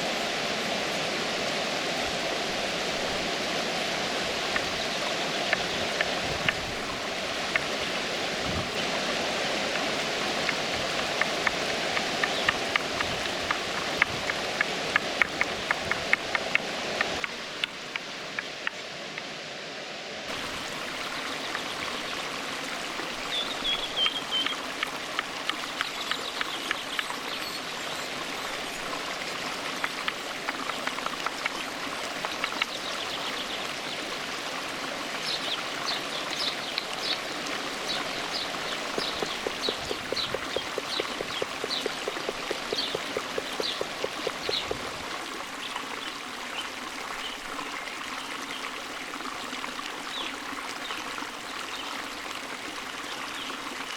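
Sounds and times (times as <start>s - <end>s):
stream water flowing: 0.0s - 53.9s
bird chirping: 23.3s - 24.6s, 25.6s - 28.1s, 37.9s - 44.8s.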